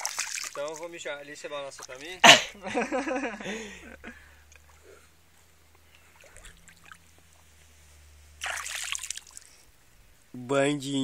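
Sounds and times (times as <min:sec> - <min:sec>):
water splash: 0:00.0 - 0:01.0, 0:01.6 - 0:02.2, 0:06.0 - 0:07.2, 0:08.4 - 0:09.6
water trickling: 0:00.0 - 0:02.3, 0:05.6 - 0:07.6, 0:08.3 - 0:10.0.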